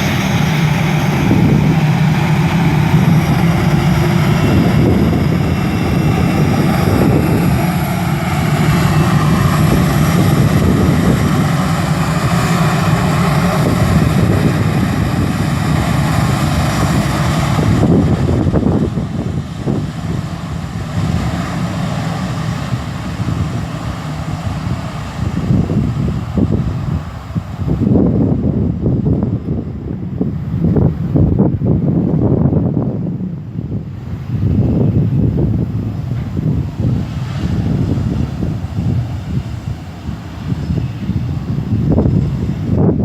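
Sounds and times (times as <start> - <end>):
jet engines running: 0.0 - 43.0.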